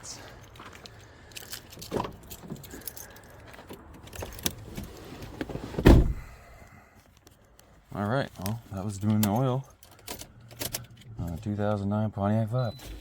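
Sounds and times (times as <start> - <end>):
gear clattering and rattling: 0.6 - 4.7
heavy thump: 5.8 - 6.4.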